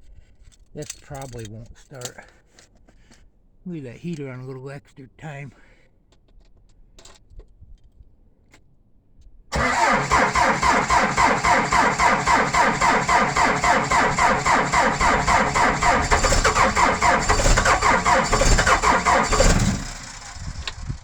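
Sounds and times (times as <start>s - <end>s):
engine starter cranking: 9.5s - 21.0s
engine running: 9.6s - 21.0s.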